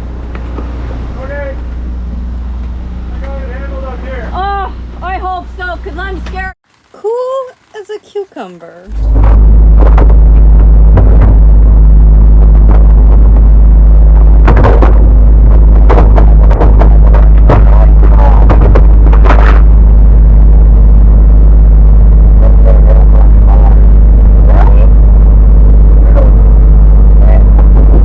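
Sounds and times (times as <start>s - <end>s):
storm wind blasting microphone: 8.9s - 28.0s
sharp knocks and slaps: 14.4s - 19.6s.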